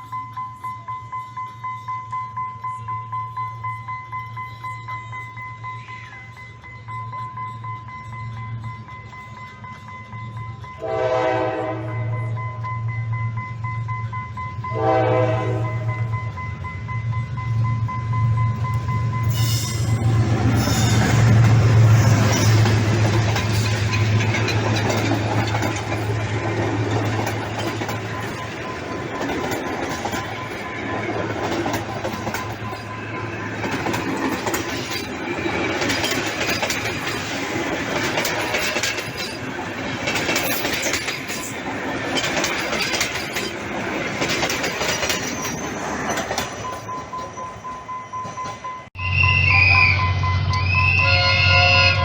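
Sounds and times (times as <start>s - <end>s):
train rumbling on track: 0.0s - 52.0s
wheel clatter: 19.4s - 47.3s.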